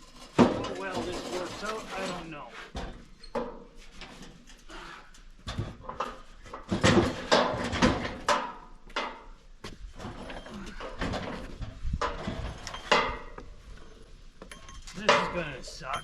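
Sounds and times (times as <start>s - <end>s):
barbecue grill knocking and clattering: 5.4s - 9.3s, 14.5s - 16.0s.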